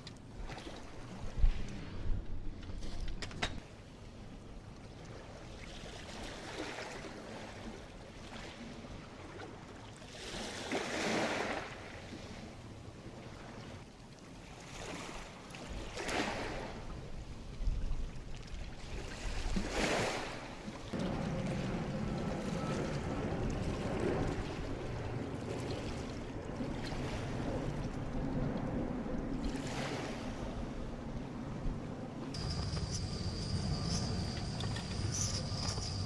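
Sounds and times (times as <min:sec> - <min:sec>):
ocean waves washing onto beach: 0:18.2 - 0:36.0.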